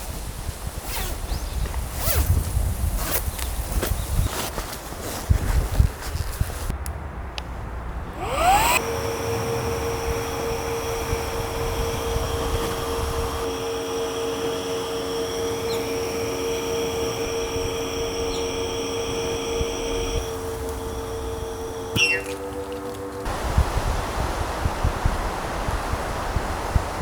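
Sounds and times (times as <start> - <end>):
wind rumbling on microphone: 0.0 - 8.7, 9.9 - 13.5, 23.2 - 27.0
electric air pump whining: 8.1 - 24.2.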